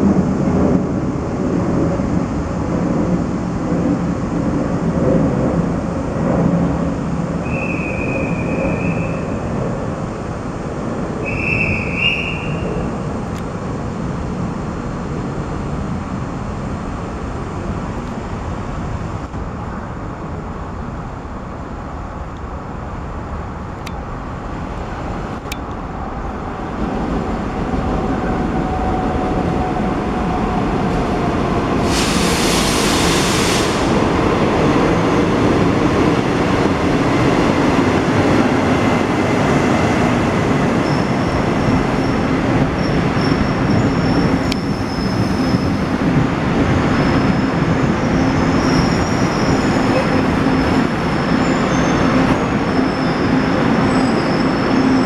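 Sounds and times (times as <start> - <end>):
passenger train rolling: 0.0 - 55.0
short hiss: 31.9 - 33.9
faint high wheel squeal: 42.8 - 45.8, 46.8 - 55.0.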